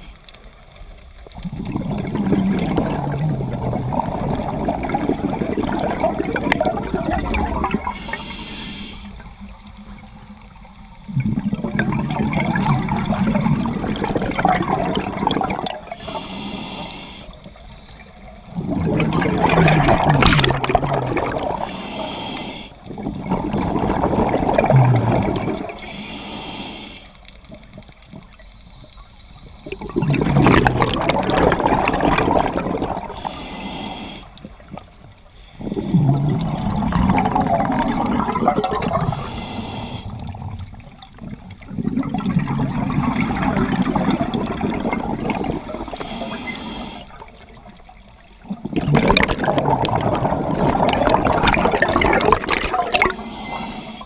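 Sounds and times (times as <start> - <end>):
gurgling exhaled bubbles: 1.2 - 26.0, 27.4 - 54.0
regulator inhale hiss: 7.8 - 9.5, 15.8 - 18.4, 21.6 - 23.0, 25.6 - 27.5, 33.0 - 36.4, 39.0 - 41.0, 45.4 - 47.5, 53.0 - 54.0.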